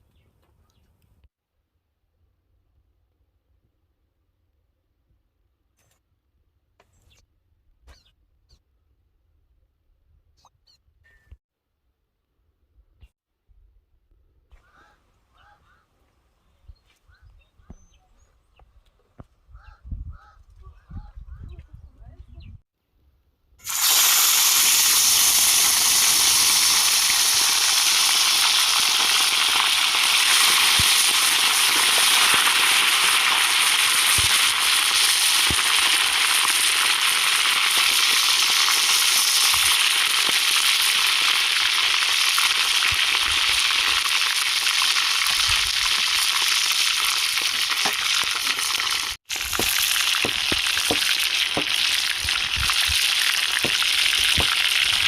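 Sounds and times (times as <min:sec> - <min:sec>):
food sizzling in hot oil: 0:23.6 - 0:55.0.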